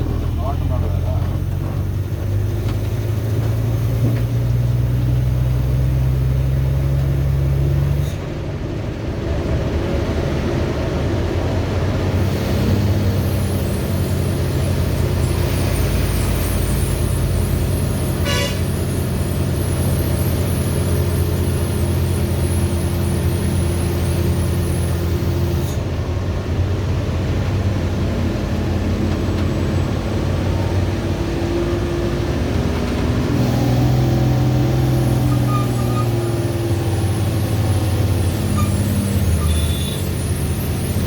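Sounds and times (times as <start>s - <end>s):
diesel lorry engine running: 0.0s - 41.0s
horn toot: 18.2s - 18.8s.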